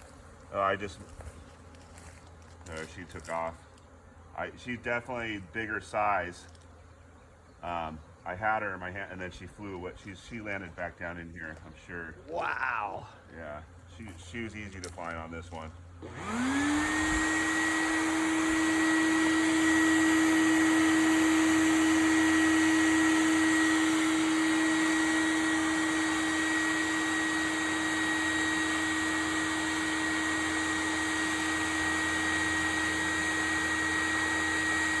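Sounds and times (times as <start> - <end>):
vacuum humming and whining: 9.6 - 35.0.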